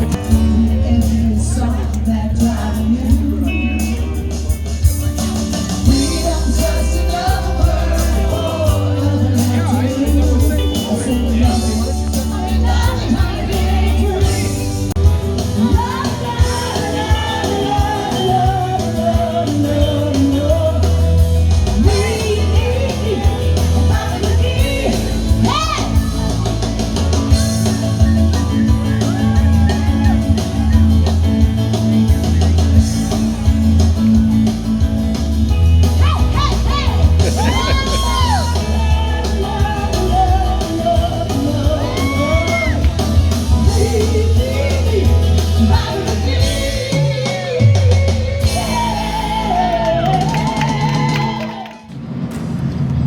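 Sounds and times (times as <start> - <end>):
person singing: 0.0 - 4.4, 5.8 - 31.1, 36.0 - 51.5
bass line: 0.0 - 51.6
live band playing: 0.0 - 52.3
person shouting: 36.0 - 38.6.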